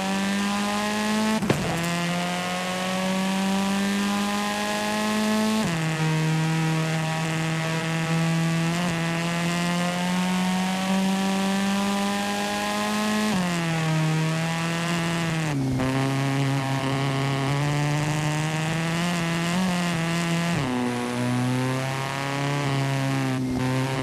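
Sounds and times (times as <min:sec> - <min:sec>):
video game car engine accelerating: 0:00.0 - 0:24.0.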